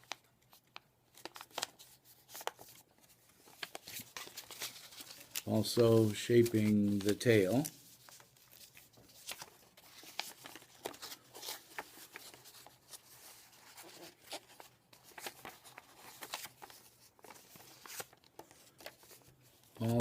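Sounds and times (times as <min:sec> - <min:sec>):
paper crinkling and clicking: 0:00.0 - 0:20.0.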